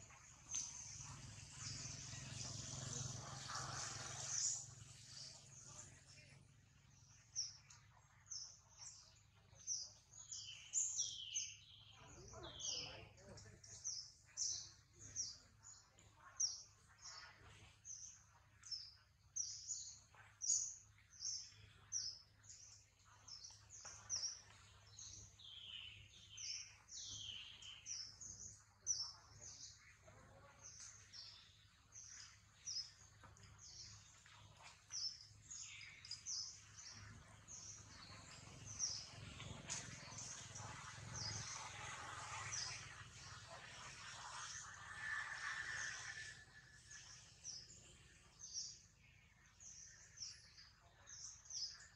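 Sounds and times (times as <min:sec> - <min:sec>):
bird chirping: 0:18.0 - 0:51.9.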